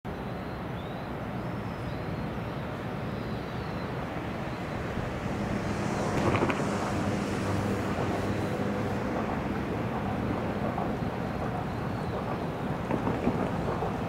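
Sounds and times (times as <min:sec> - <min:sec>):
faint birds chirping: 0:00.1 - 0:07.0
train rumbling: 0:00.4 - 0:14.0.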